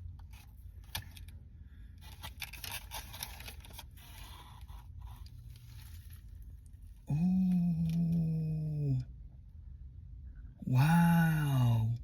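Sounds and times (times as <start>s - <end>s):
crackly scraping and tearing: 2.0s - 7.0s.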